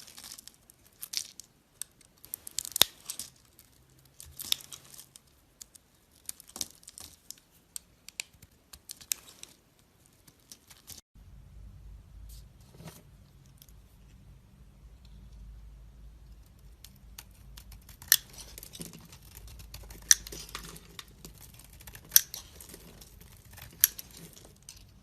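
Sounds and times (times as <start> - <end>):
knife cutting soap: 16.4 - 25.0.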